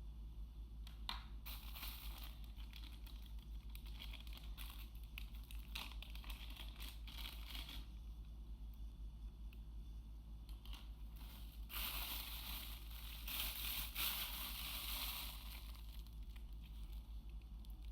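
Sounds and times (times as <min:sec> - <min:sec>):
packaging crinkling: 0:01.5 - 0:07.9, 0:10.6 - 0:17.9.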